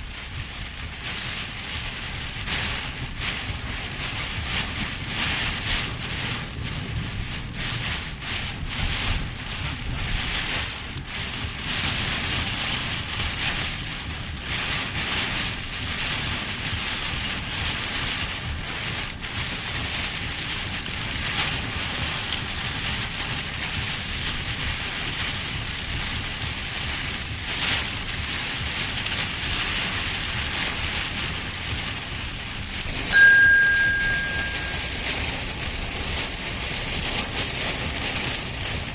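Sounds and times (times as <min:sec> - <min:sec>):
heavy rain pouring: 0:00.0 - 0:38.9
short high beep: 0:33.2 - 0:35.0.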